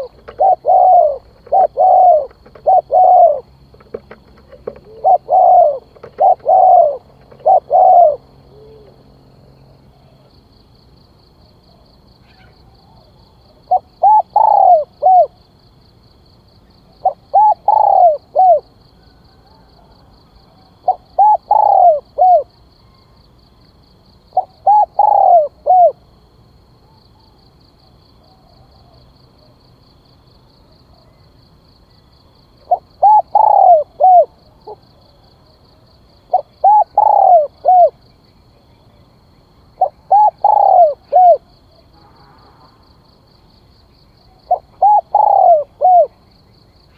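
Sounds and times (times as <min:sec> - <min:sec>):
dove cooing: 0:00.0 - 0:09.2, 0:11.7 - 0:15.4, 0:17.0 - 0:23.1, 0:24.3 - 0:26.0, 0:32.6 - 0:35.2, 0:36.3 - 0:38.0, 0:39.8 - 0:41.5, 0:44.3 - 0:46.2.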